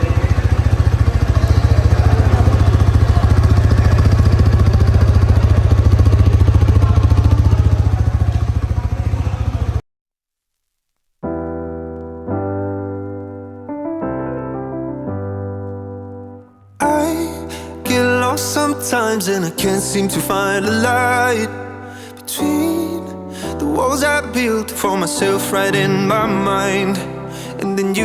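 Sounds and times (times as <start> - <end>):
motorcycle engine idling: 0.0 - 9.8
piano music: 11.2 - 28.0.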